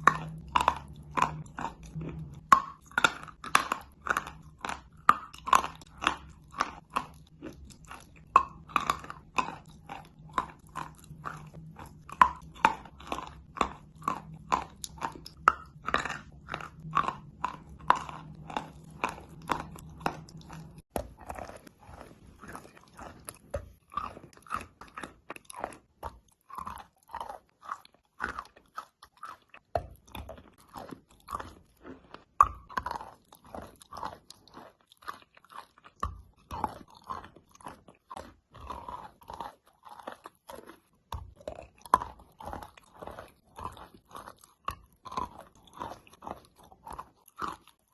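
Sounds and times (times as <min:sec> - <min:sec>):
low steady hum: 0:00.0 - 0:25.5
chalk crunching while chewed: 0:00.0 - 0:47.9.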